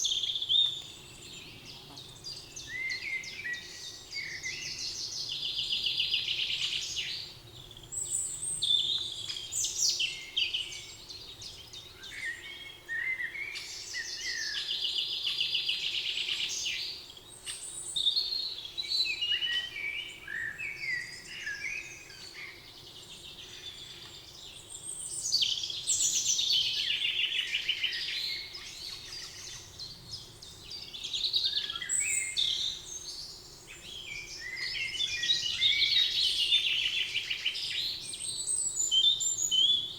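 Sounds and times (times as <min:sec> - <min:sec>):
birds chirping and whistling: 0:18.8 - 0:39.9.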